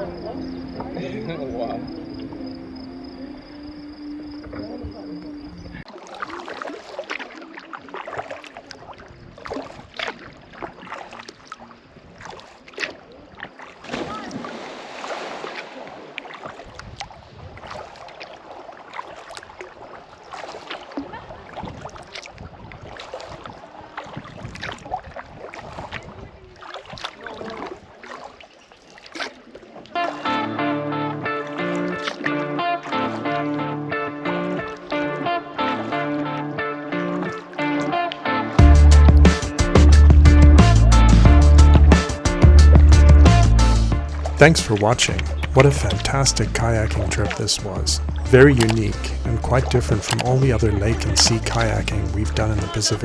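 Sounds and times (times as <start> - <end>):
paddle splashing in water: 4.5 - 30.4, 31.5 - 33.4, 44.0 - 53.0.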